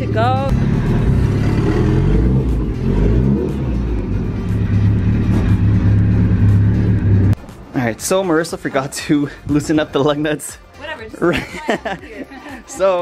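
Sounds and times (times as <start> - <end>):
car engine running: 0.0 - 7.4.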